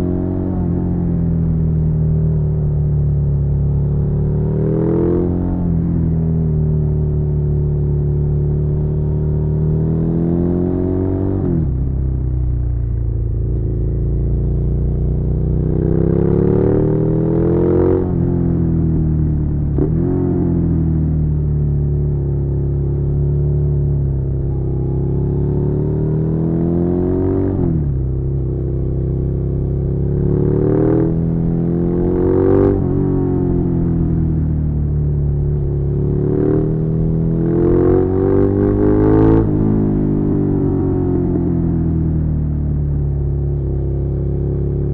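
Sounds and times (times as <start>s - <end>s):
motorcycle engine revving: 12.9s - 42.2s.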